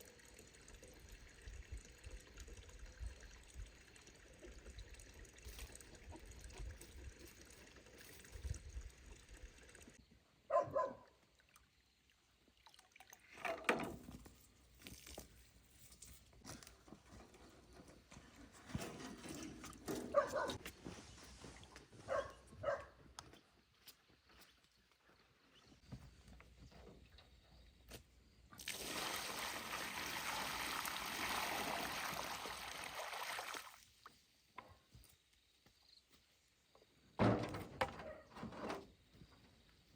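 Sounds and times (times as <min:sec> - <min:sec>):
water trickling and pouring: 0:00.0 - 0:10.0, 0:11.3 - 0:14.1, 0:28.5 - 0:34.1.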